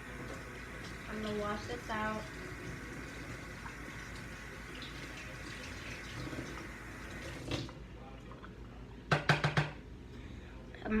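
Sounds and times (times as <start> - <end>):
tap water running: 0.0 - 7.8.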